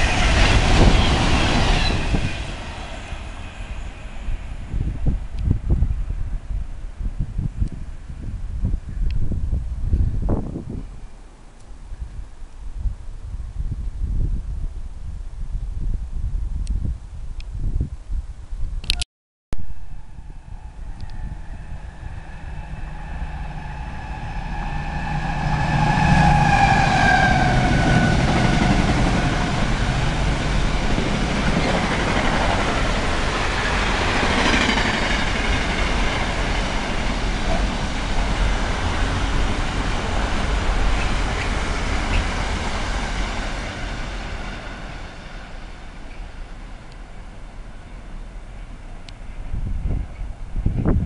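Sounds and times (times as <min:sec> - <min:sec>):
locomotive passing: 0:00.0 - 0:06.6, 0:19.9 - 0:50.9.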